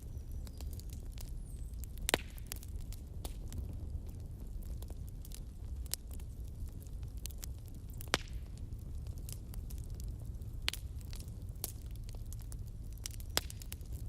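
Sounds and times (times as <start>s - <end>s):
wood fire crackling: 0.0s - 14.0s
sharp pops and snaps: 2.0s - 3.5s, 7.2s - 8.6s, 10.6s - 14.0s.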